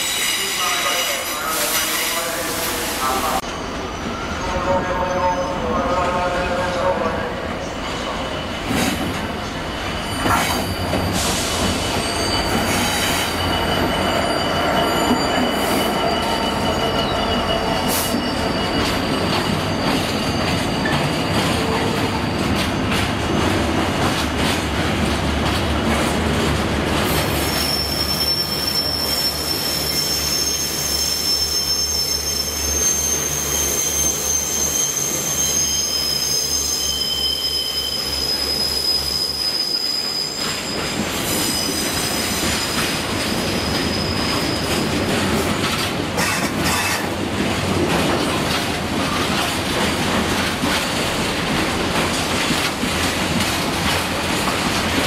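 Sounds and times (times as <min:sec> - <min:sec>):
wheel squeal: 0:00.0 - 0:01.2, 0:09.8 - 0:22.8, 0:27.3 - 0:44.9
train wheels clattering on rail: 0:08.6 - 0:28.3, 0:40.0 - 0:55.0.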